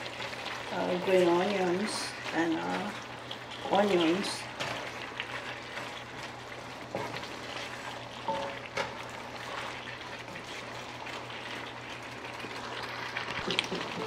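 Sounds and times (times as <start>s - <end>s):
meat sizzling in a frying pan: 0.0s - 14.0s
spatula tapping and scraping: 8.3s - 9.6s.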